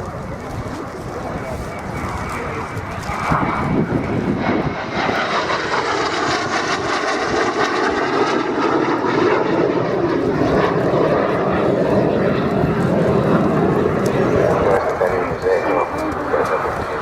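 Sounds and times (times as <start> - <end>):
aircraft engine passing fast: 0.0 - 17.0.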